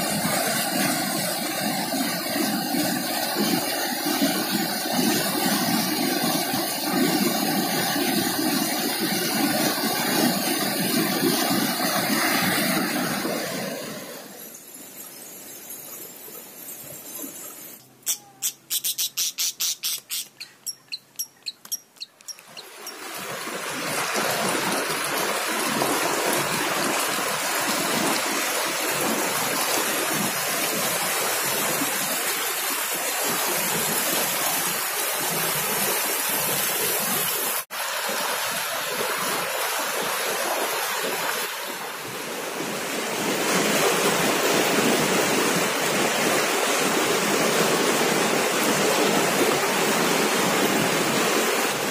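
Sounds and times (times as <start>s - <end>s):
sharp ticks: 18.1s - 23.0s.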